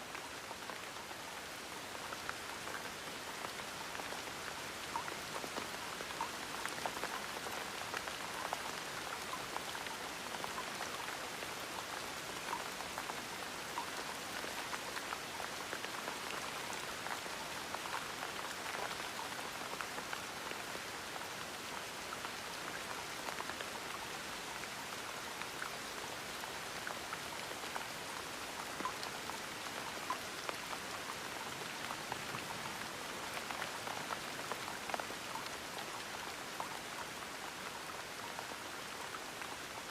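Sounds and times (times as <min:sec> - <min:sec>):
gentle rain patter: 0:00.0 - 0:39.9.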